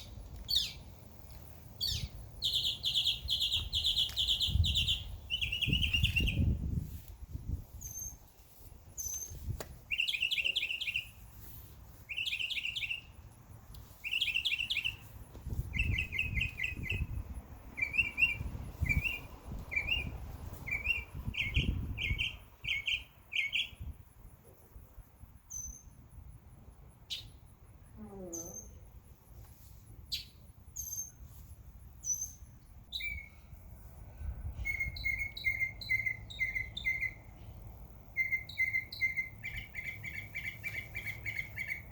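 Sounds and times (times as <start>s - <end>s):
songbird singing trilled phrases: 0.0s - 0.9s, 1.8s - 6.8s, 7.7s - 8.3s, 9.0s - 11.2s, 12.1s - 13.2s, 13.8s - 24.1s, 25.5s - 26.0s, 27.0s - 28.9s, 30.1s - 31.3s, 32.0s - 33.5s, 34.4s - 41.9s.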